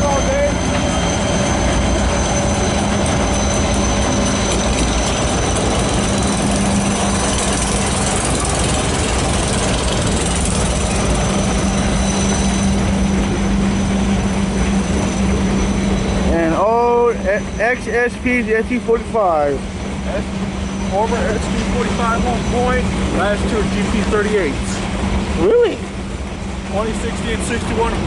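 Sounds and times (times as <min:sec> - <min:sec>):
freight train passing: 0:00.0 - 0:28.0.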